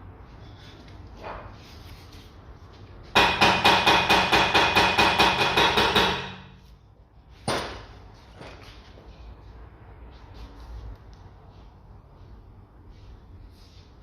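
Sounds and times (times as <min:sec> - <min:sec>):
hammer striking metal: 0:03.2 - 0:06.6.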